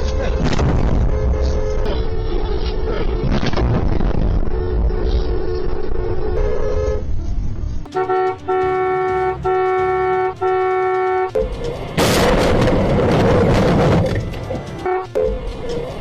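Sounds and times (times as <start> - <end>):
two-tone vehicle horn honking: 1.0 - 1.9, 7.9 - 11.4, 14.2 - 15.2
background music: 7.9 - 16.0
loud rushing noise: 11.3 - 16.0.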